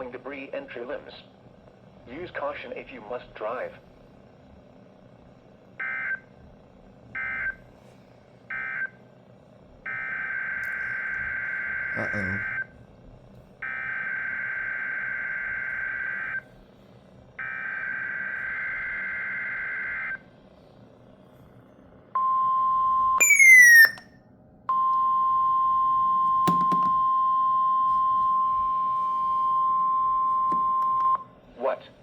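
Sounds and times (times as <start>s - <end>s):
steady warning alarm tone: 5.8s - 6.3s, 7.2s - 7.6s, 8.5s - 9.0s, 9.8s - 12.7s, 13.6s - 16.4s, 17.4s - 20.2s, 23.2s - 24.0s
short falling chirp: 23.2s - 24.0s.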